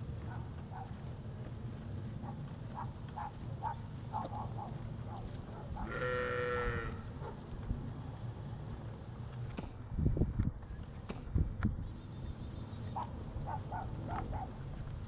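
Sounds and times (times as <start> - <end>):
sheep bleating: 5.8 - 7.0.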